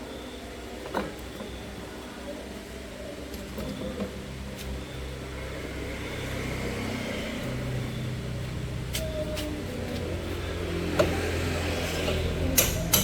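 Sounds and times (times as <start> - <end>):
vehicle engine humming: 4.0 - 13.0.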